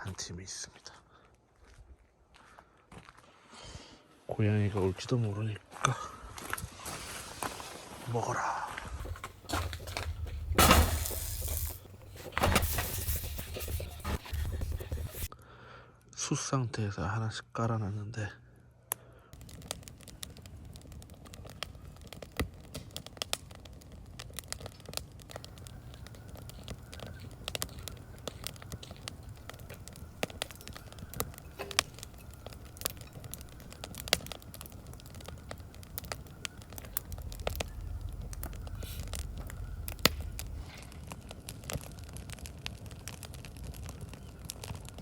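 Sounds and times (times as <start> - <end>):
wood fire crackling and popping: 8.9 - 15.3, 19.4 - 45.0
steady low rumble: 25.4 - 40.7.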